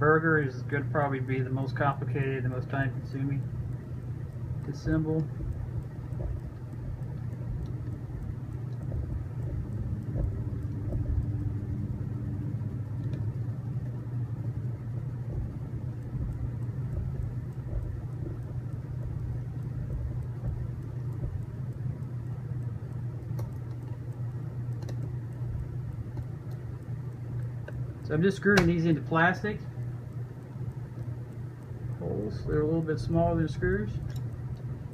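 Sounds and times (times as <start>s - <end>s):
machinery humming: 0.0s - 34.9s
faint clicks: 12.8s - 29.0s, 29.6s - 34.9s.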